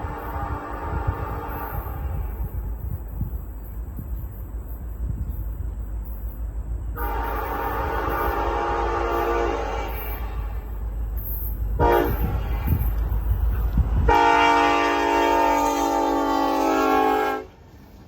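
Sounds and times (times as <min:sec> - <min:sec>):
locomotive air horn: 0:00.0 - 0:02.5, 0:07.0 - 0:10.9, 0:11.8 - 0:12.8, 0:14.0 - 0:17.6
low locomotive rumble: 0:00.0 - 0:18.0.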